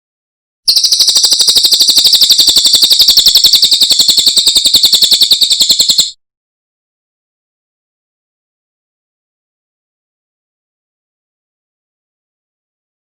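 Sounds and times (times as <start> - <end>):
songbird trilling: 0.7 - 6.1.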